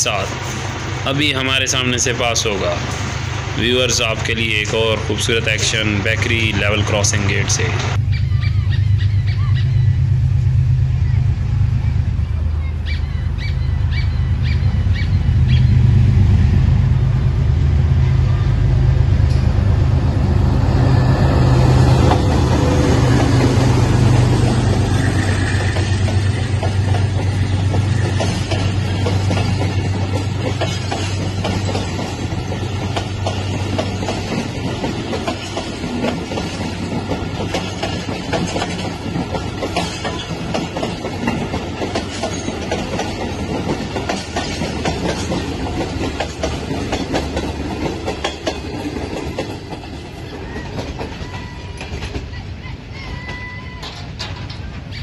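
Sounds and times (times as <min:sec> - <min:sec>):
train wheels clattering on rails: 0:00.0 - 0:08.0, 0:19.1 - 0:55.0
diesel locomotive engine passing: 0:00.0 - 0:55.0.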